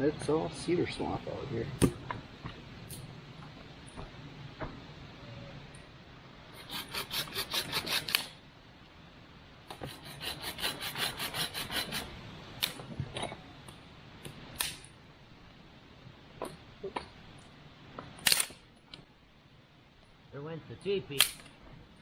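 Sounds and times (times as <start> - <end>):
quick rasping strokes: 6.6 - 8.3, 9.7 - 12.1.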